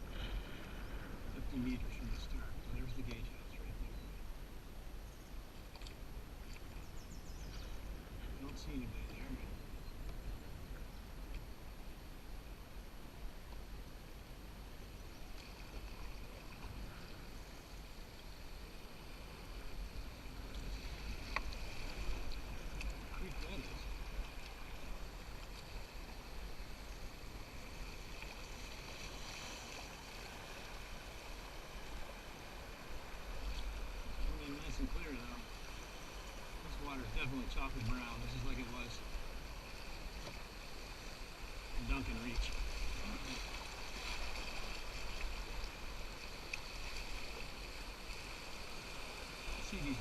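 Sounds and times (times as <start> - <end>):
river water rushing: 15.5 - 50.0
faint ticks: 20.4 - 21.6, 45.2 - 47.5.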